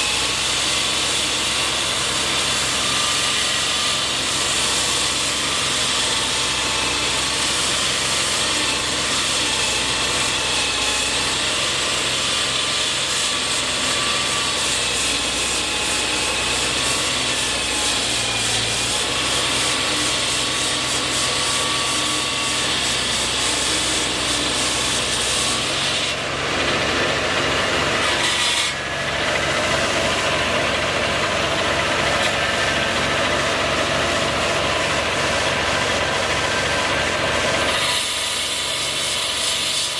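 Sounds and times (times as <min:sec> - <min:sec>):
engine running: 0:00.0 - 0:38.2
rasping grinding noise: 0:00.0 - 0:39.0.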